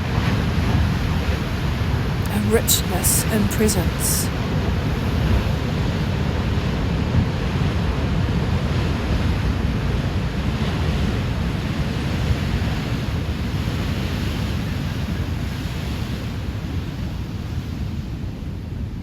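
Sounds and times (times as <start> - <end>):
ocean waves washing on shore: 5.4 - 19.0.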